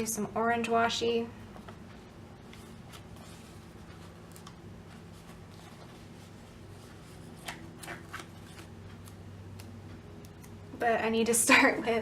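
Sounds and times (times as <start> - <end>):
steady low hum: 0.0 - 12.0
paper and tape rustling: 2.4 - 9.2.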